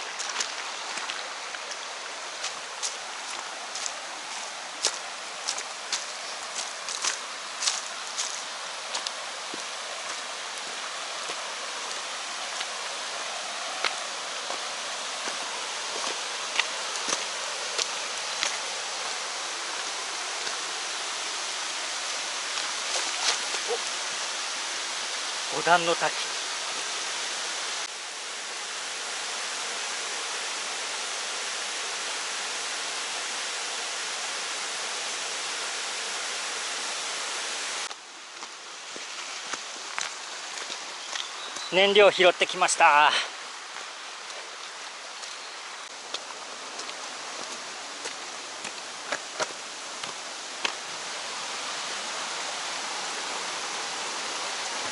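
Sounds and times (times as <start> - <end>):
mountain stream rushing: 0.0 - 54.9
small waterfall cascading: 0.0 - 54.9.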